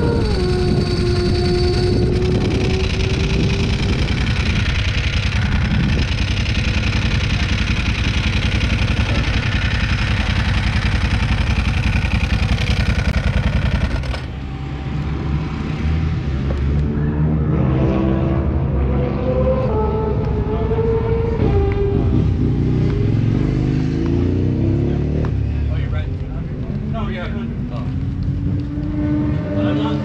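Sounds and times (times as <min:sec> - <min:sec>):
wind rush on microphone: 0:00.0 - 0:09.8
motorcycle engine running: 0:00.0 - 0:16.9, 0:20.4 - 0:30.0.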